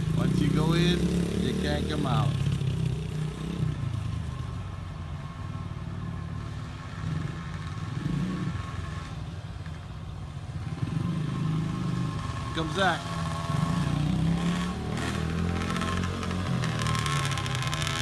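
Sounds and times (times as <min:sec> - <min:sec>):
dirt bike engine running: 0:12.3 - 0:18.0.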